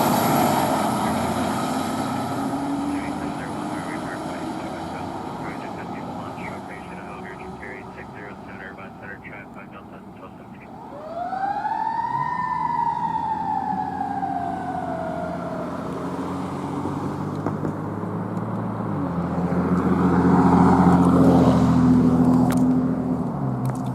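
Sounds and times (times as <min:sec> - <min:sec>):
diesel engine running: 0:00.0 - 0:11.6
fire engine siren wailing: 0:00.0 - 0:17.2.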